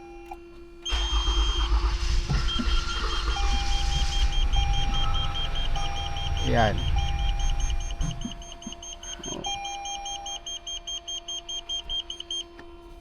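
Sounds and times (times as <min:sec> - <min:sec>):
car engine cranking: 0:00.2 - 0:10.9
rapid electronic beeping: 0:00.9 - 0:12.5.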